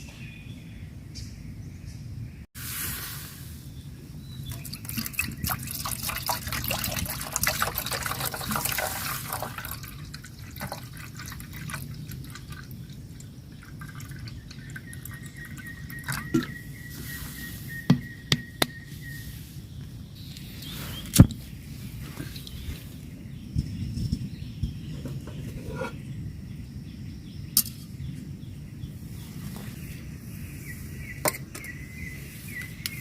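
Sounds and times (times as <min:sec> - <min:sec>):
water dripping: 0:04.4 - 0:16.5.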